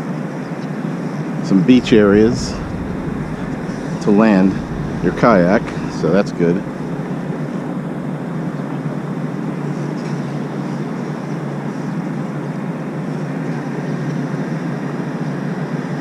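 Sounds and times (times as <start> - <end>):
steady rumbling noise: 1.5 - 11.0.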